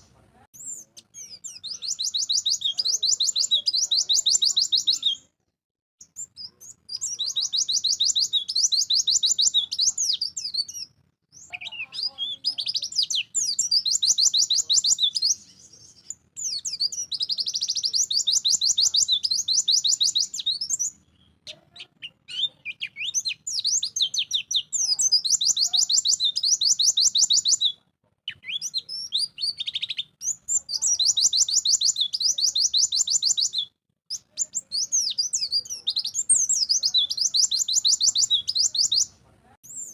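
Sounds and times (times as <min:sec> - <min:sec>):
bird twittering song: 0:00.0 - 0:05.3, 0:06.0 - 0:39.9.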